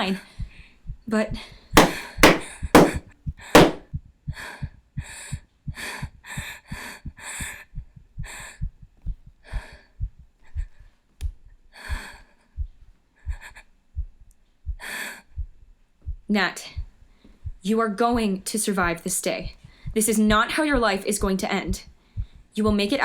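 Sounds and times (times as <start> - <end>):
heartbeat thumping: 1.8 - 3.0, 3.6 - 3.8, 11.9 - 18.3.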